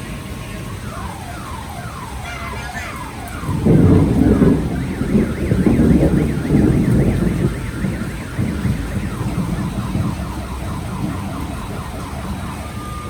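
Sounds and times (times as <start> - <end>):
electronic siren chirping and warbling: 0.6 - 13.0
loud rumble: 2.2 - 12.3.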